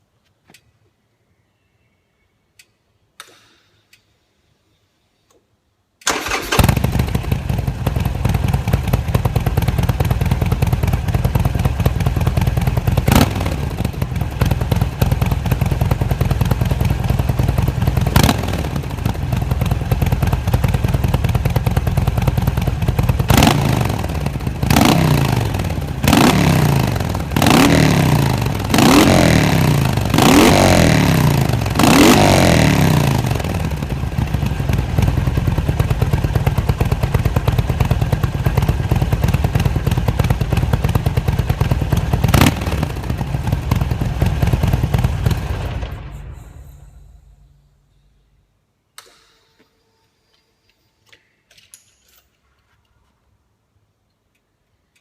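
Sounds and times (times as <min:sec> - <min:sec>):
faint clicks: 0:02.5 - 0:04.1
motorcycle engine idling and revving: 0:06.1 - 0:47.6.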